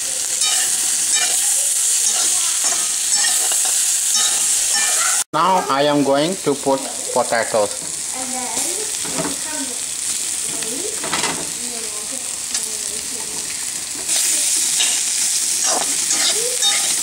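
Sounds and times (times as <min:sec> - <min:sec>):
vegetables sizzling in oil: 0:00.0 - 0:17.0
spatula stirring in a pan: 0:00.2 - 0:05.2, 0:12.2 - 0:17.0.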